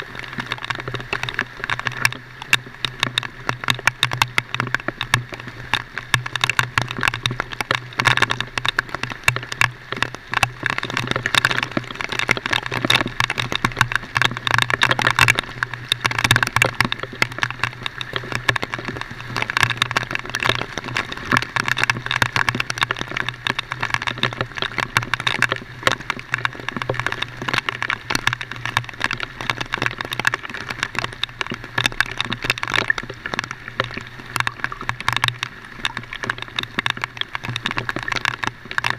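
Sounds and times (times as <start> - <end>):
rain crackle: 0.0 - 38.9.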